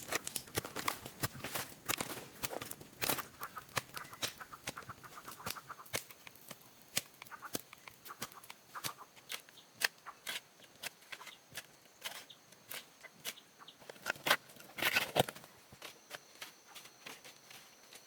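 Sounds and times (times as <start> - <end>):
chickens clucking: 3.2 - 6.0, 7.2 - 9.1.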